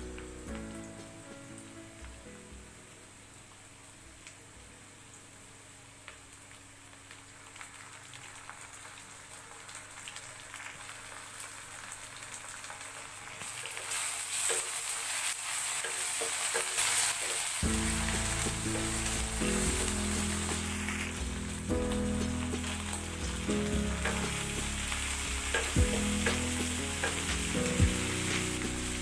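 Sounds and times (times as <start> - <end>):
background music: 0.0 - 2.8, 17.6 - 29.0
food sizzling in oil: 6.2 - 29.0.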